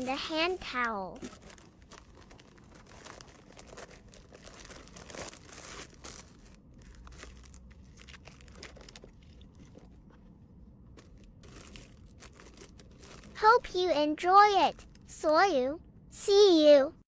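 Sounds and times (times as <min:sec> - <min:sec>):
plastic packaging crinkling: 0:00.0 - 0:10.3, 0:10.9 - 0:13.4, 0:14.6 - 0:15.1.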